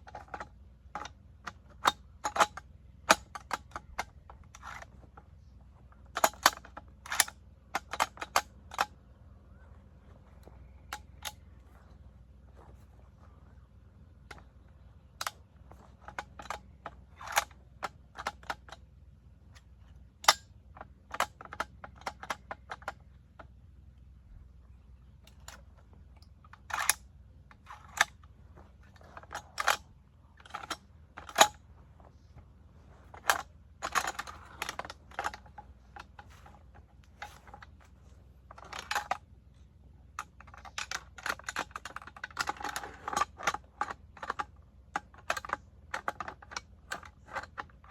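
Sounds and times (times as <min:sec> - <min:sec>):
metallic gun parts clicking: 0:06.1 - 0:08.9, 0:10.4 - 0:11.4, 0:15.2 - 0:18.8, 0:26.5 - 0:28.2, 0:28.8 - 0:29.8, 0:30.4 - 0:31.6, 0:32.9 - 0:37.9, 0:38.5 - 0:39.2, 0:40.2 - 0:47.9.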